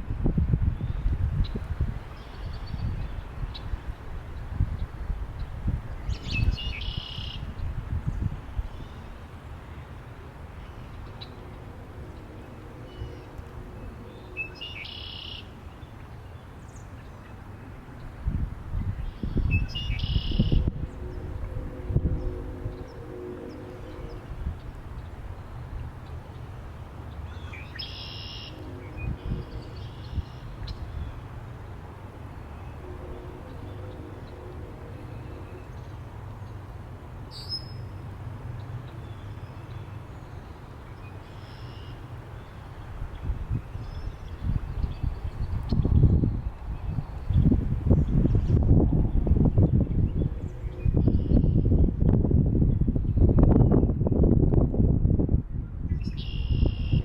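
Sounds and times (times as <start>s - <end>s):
wind buffeting microphone: 0.0s - 14.6s, 17.4s - 27.8s, 28.5s - 37.3s, 42.6s - 57.0s
songbird buzzy trill call: 6.2s - 7.6s, 12.9s - 15.6s, 19.0s - 21.4s, 27.3s - 31.3s, 41.1s - 42.6s, 56.0s - 57.0s.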